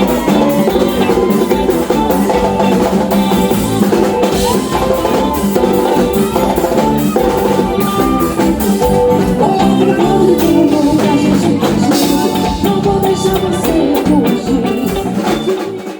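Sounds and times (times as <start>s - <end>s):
live band playing upbeat song: 0.0s - 15.9s.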